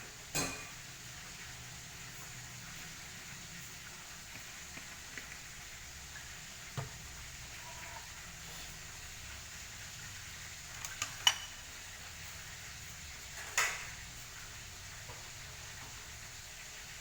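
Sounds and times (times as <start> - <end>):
faint steady hiss: 0.0 - 17.0
metal utensils clinking: 0.3 - 0.7, 10.7 - 11.8
cookware clatter: 0.3 - 0.8, 10.7 - 11.7.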